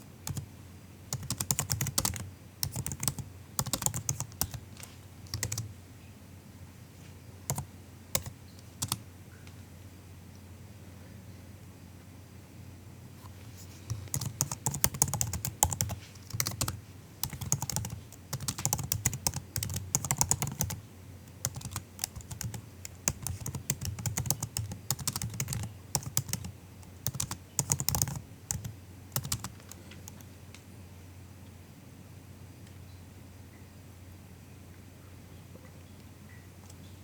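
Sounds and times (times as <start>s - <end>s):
laptop keyboard typing: 0.2s - 0.5s, 1.1s - 5.7s, 7.5s - 9.0s, 13.9s - 30.2s.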